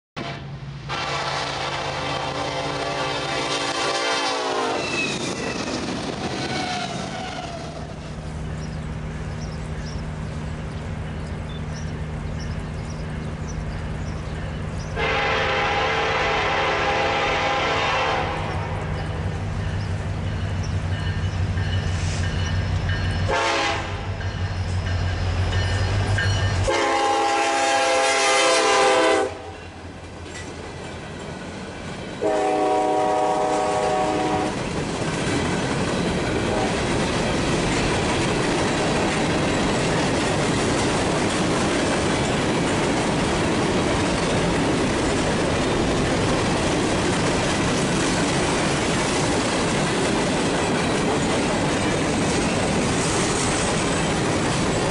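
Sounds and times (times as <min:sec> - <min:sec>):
train air horn blasts: 0:00.2 - 0:05.3, 0:15.0 - 0:19.0, 0:23.2 - 0:24.2, 0:26.6 - 0:29.8, 0:32.2 - 0:34.6, 0:36.5 - 0:36.8
diesel locomotive rumbling: 0:00.2 - 0:54.9
train wheels clattering on rails: 0:02.2 - 0:54.9.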